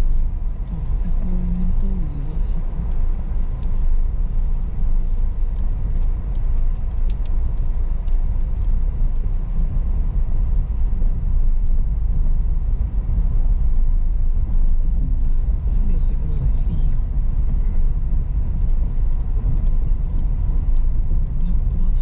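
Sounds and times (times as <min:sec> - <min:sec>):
car driving on dirt road: 0:00.0 - 0:22.0
small clicks and ticks: 0:00.1 - 0:09.8, 0:10.4 - 0:12.3, 0:18.4 - 0:22.0.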